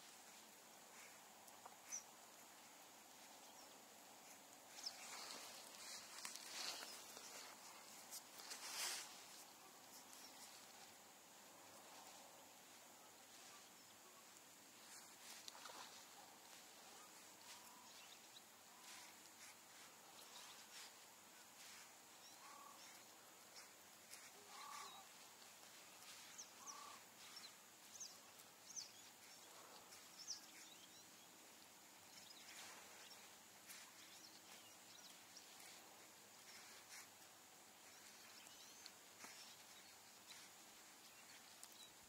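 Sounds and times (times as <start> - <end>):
distant birds calling: 13.0 - 42.0.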